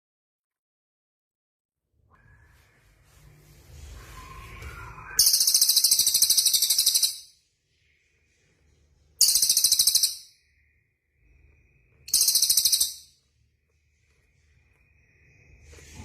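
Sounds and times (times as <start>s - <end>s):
songbird high rapid trill: 5.2s - 7.3s, 9.2s - 10.3s, 12.1s - 13.1s.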